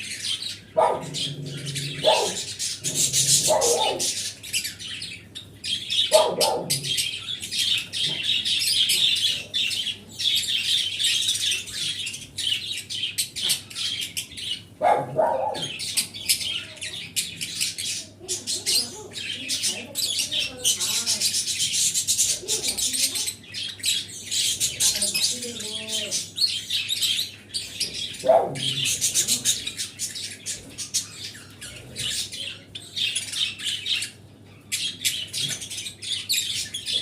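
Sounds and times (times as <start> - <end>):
harsh low bird calls: 0.0 - 35.7
pet birds chirping and twittering: 0.0 - 37.0.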